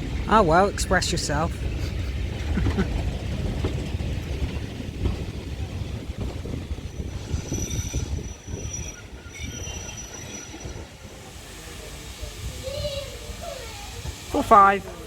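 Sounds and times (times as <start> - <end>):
heavy low rumble: 0.0 - 8.2
train wheels squealing on rails: 6.6 - 14.6.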